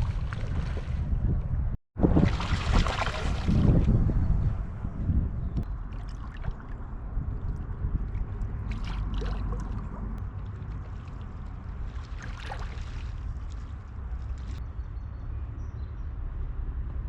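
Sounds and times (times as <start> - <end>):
steady low rumble: 0.0 - 14.7
loud water splashes: 2.0 - 3.9, 8.2 - 10.2, 11.8 - 13.7.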